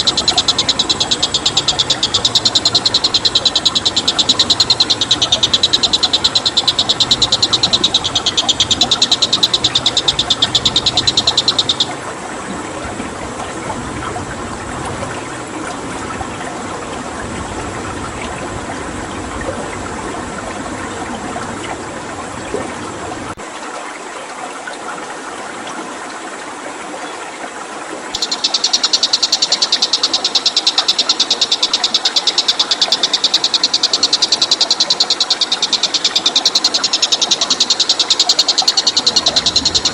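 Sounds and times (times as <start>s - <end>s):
high pulsing trill: 0.0s - 12.0s, 28.2s - 39.9s
water flowing: 0.0s - 39.9s.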